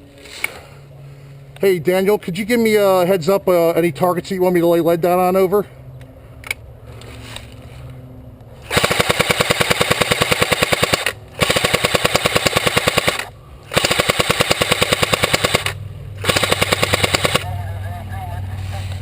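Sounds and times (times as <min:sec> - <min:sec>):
airsoft gun firing bursts: 0:08.7 - 0:17.4.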